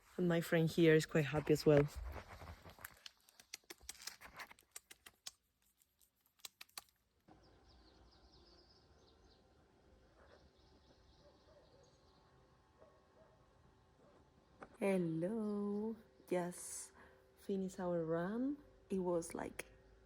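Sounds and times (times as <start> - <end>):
faint bird chirps: 7.3 - 13.4.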